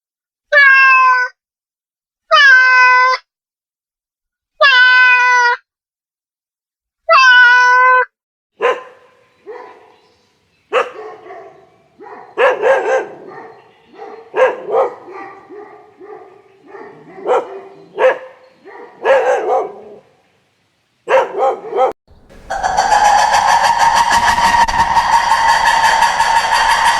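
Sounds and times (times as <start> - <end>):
dog barking: 8.6 - 20.2, 21.0 - 26.9.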